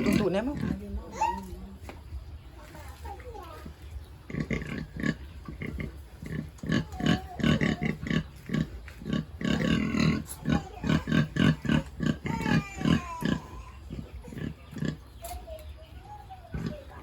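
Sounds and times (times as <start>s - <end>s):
pigs grunting: 0.0s - 1.5s, 4.2s - 15.4s, 16.2s - 17.0s
pig squeals: 4.3s - 15.4s.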